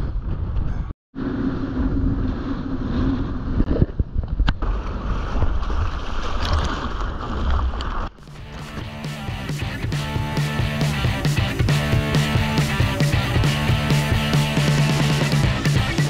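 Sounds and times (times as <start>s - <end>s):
wind buffeting microphone: 0.0s - 7.8s
music: 8.2s - 16.0s.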